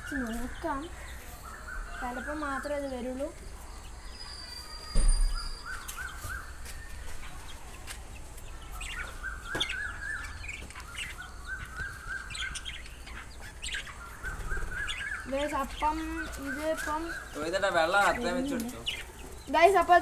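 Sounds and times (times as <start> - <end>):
small birds chirping: 0.0 - 20.0
thump: 4.9 - 5.5.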